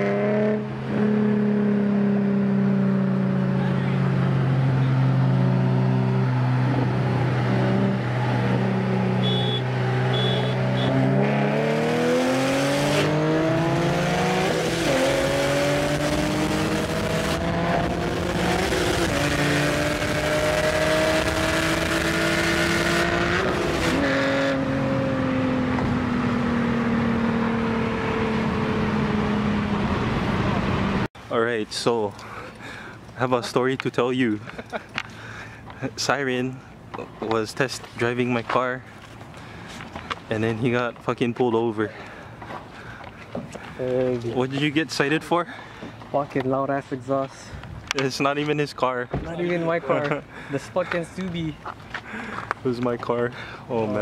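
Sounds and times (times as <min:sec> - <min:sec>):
turbocharged car engine accelerating: 0:00.0 - 0:31.1
short high beeps: 0:09.2 - 0:11.0.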